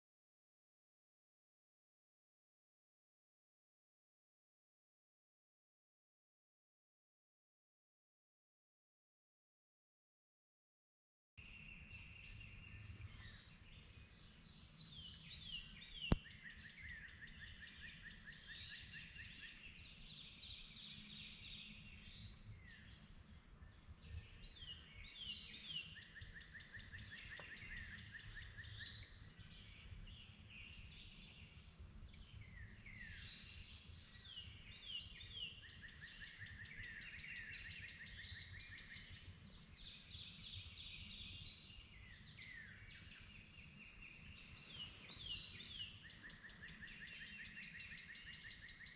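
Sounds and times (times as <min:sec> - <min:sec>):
songbird singing faintly: 0:11.4 - 0:48.9.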